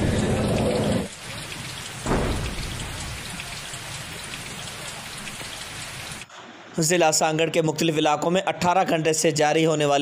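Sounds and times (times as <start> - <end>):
heavy rain pouring on street: 0.0 - 6.3.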